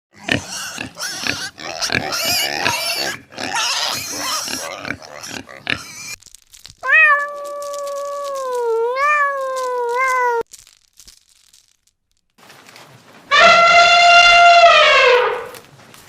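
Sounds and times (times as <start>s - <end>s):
pig squealing: 0.2s - 6.2s, 13.3s - 15.6s
cat meowing: 6.8s - 10.5s.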